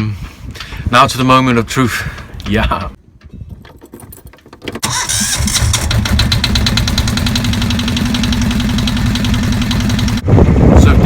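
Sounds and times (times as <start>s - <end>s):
diesel engine knocking: 5.8s - 10.2s.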